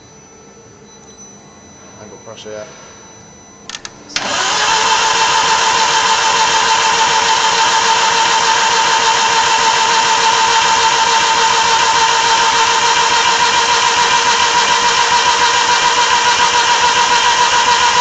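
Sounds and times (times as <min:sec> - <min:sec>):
short clicks: 0:03.7 - 0:04.4
starter motor cranking engine: 0:03.7 - 0:18.0.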